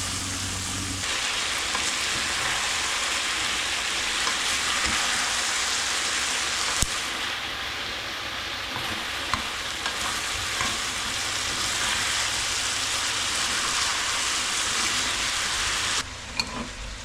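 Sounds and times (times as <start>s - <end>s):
low hum: 0.0s - 1.1s
chicken sizzling in frying pan: 0.0s - 16.1s.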